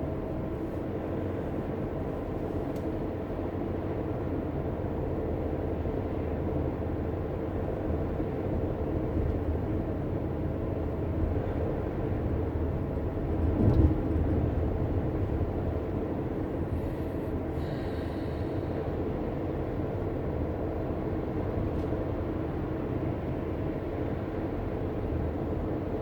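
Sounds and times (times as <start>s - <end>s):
car road and engine rumble: 0.0s - 26.0s
low thump: 13.4s - 14.6s.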